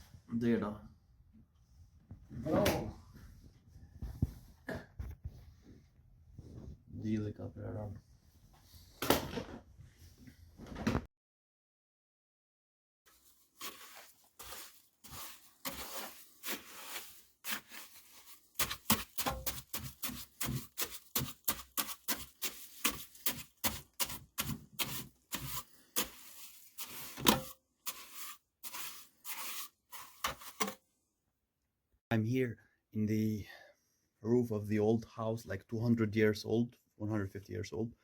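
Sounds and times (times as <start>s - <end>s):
short scrapes rustles and knocks: 13.1s - 30.9s.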